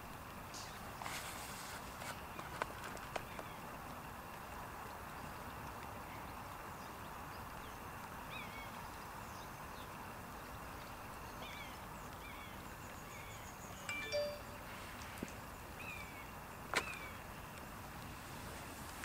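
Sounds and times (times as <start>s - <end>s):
steady background hiss: 0.0s - 19.0s
small birds chirping: 10.8s - 17.6s.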